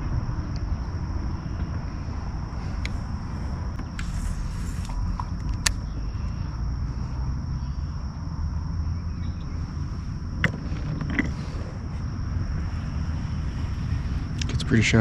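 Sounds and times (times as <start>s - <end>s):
crickets buzzing: 0.0s - 15.0s
low rumble: 0.0s - 15.0s
sharp clicks: 4.8s - 5.9s.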